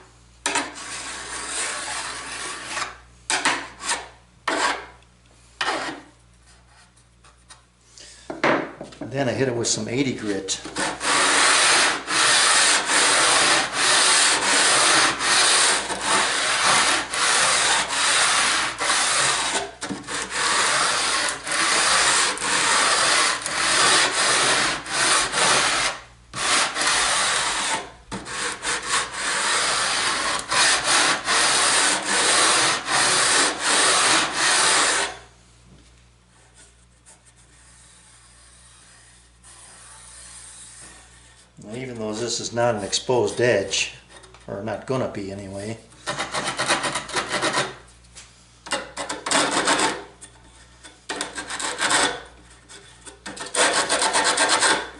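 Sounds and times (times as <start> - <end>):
sandpaper rubbing metal edge: 10.8 - 35.2, 37.4 - 43.4, 51.2 - 52.2, 53.3 - 54.9.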